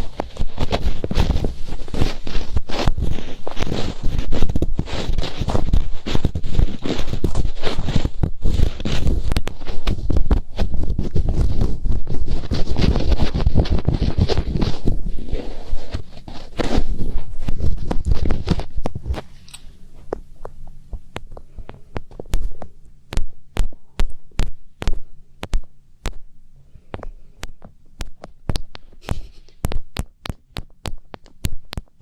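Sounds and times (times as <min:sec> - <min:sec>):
fingertips rubbing on microphone: 0:00.0 - 0:19.4, 0:27.0 - 0:32.0
sharp finger taps: 0:20.9 - 0:26.2, 0:26.9 - 0:32.0.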